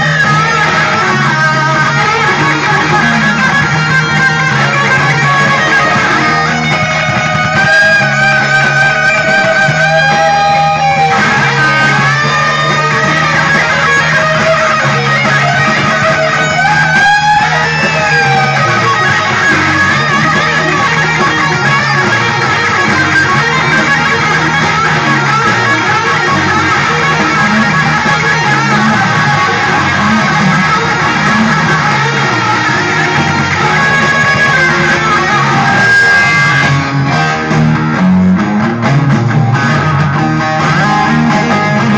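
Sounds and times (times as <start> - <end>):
bass line: 0.0 - 41.9
electric guitar blues lead: 0.0 - 41.9.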